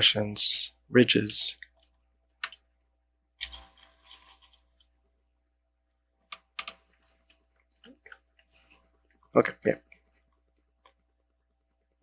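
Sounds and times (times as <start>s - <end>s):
plastic bricks clicking: 3.4s - 4.9s
plastic pieces rattling: 3.4s - 4.9s.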